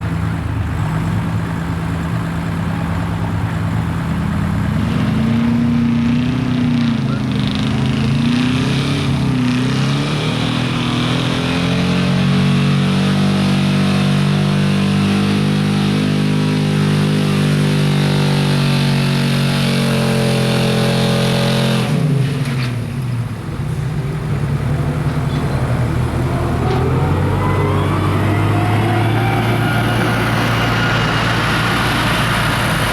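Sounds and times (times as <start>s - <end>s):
truck engine revving: 0.0s - 32.9s.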